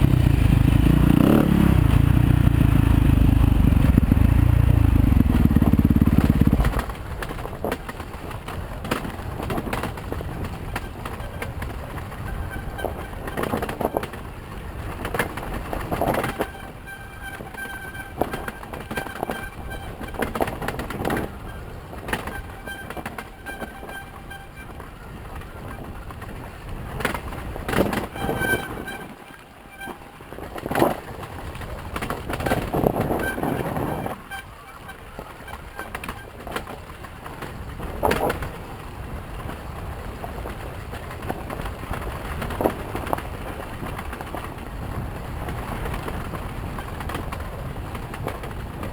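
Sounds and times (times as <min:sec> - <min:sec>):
dirt bike engine: 0:00.0 - 0:39.5
bike rattling over rough ground: 0:00.0 - 0:48.9
high-pitched squeals: 0:16.2 - 0:26.0, 0:27.9 - 0:30.4, 0:32.4 - 0:36.4.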